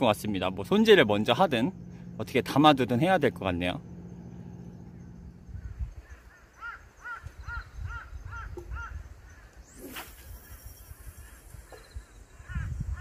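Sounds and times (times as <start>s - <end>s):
low rumble: 0.0s - 6.3s
bird calling: 3.0s - 13.0s.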